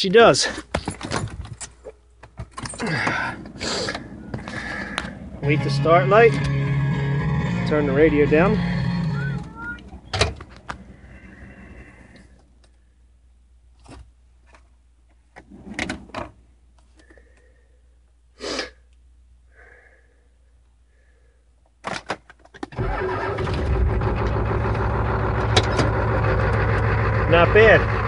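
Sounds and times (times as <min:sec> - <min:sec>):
diesel engine cranking and starting: 0:02.6 - 0:12.4, 0:22.7 - 0:28.0.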